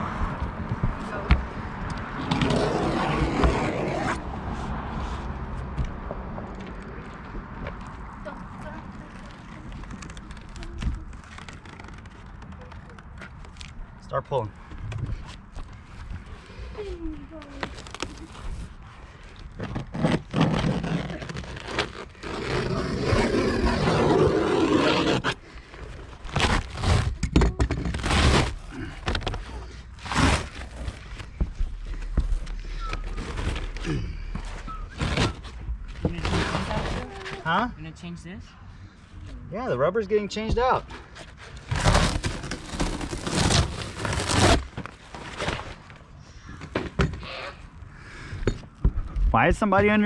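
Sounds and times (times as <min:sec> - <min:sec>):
roof membrane scraping and rustling: 0:02.1 - 0:05.3, 0:08.5 - 0:13.7, 0:15.1 - 0:37.6, 0:40.8 - 0:47.6.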